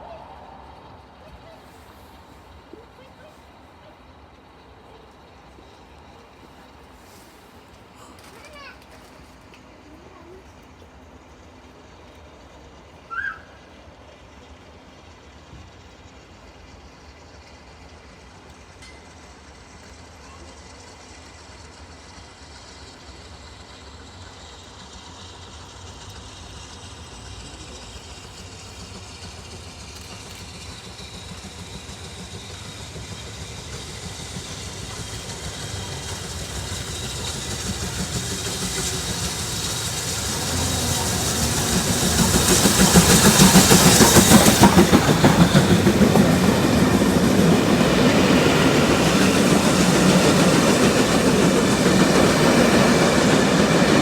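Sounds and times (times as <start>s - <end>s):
train passing: 0.0s - 54.0s.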